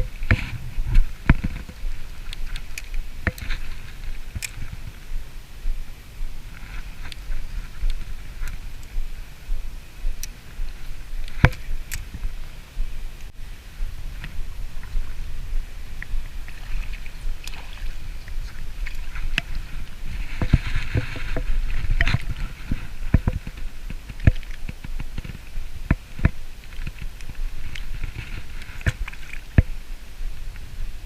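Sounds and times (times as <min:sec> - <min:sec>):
wind rumble on microphone: 0:00.0 - 0:31.0
water splashing and dripping: 0:14.1 - 0:29.8.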